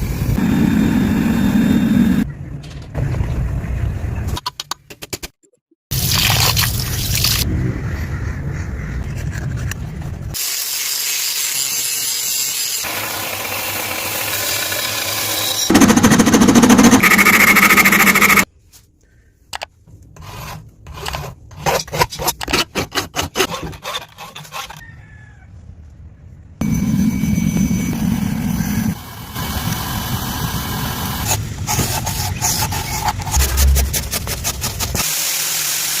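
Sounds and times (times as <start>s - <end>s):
grinding on steel: 12.9s - 18.5s.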